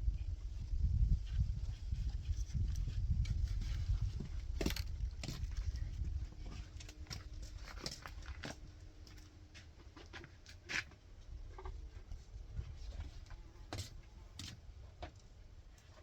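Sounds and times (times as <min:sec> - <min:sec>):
low steady rumble: 0:00.0 - 0:09.9.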